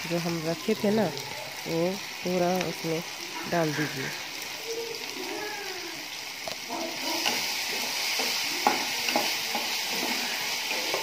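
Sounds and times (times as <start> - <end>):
onions and tomatoes sizzling in oil: 0.0 - 11.0
spatula scraping the pan: 6.7 - 11.0.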